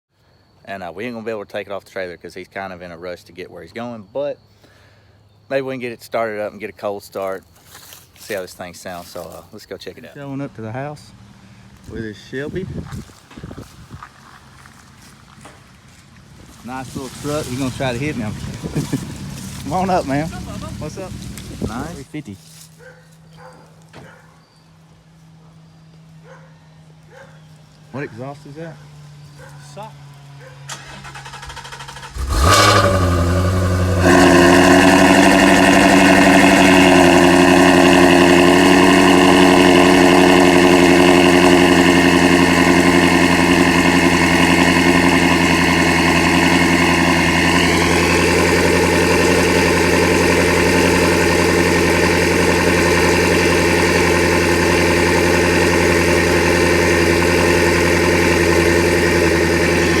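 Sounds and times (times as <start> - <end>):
car engine high idle: 10.1 - 12.6, 14.1 - 22.1, 25.1 - 60.0.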